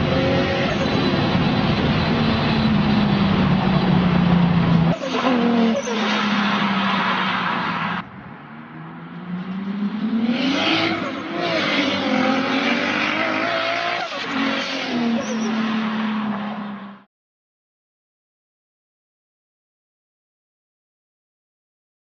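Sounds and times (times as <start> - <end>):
car engine revving high: 0.0 - 16.4.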